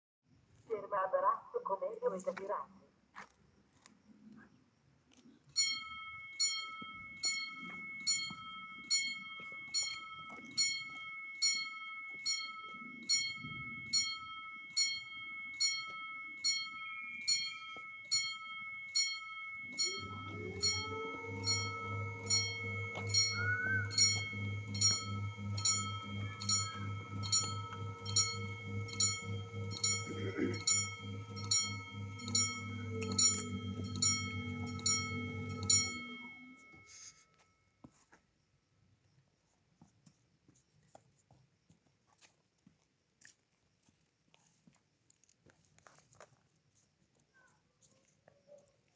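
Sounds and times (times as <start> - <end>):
level-crossing warning bell: 5.5 - 37.8.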